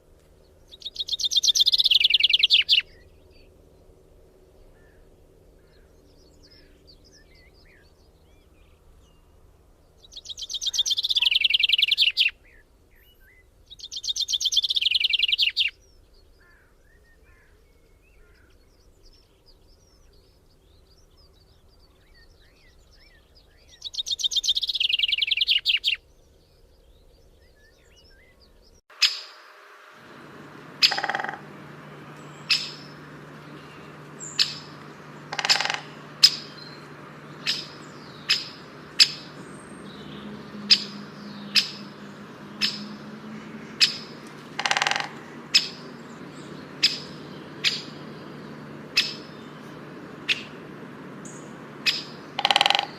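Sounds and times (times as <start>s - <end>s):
faint bird chirps: 0.6s - 3.5s, 9.9s - 52.9s
short sharp bird calls: 28.9s - 52.9s
songbird descending trill: 28.9s - 52.9s.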